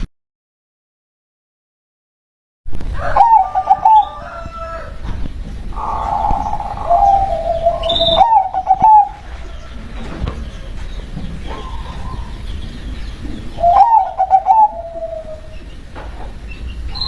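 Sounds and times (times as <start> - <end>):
dove cooing: 3.0 - 4.8, 5.7 - 9.8, 11.4 - 12.5, 13.3 - 15.7.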